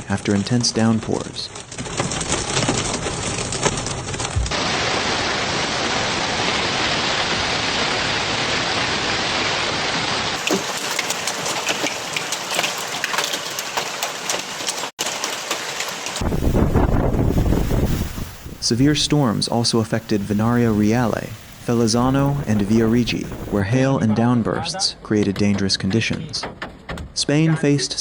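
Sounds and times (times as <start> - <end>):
heavy rain pouring: 1.6 - 23.6.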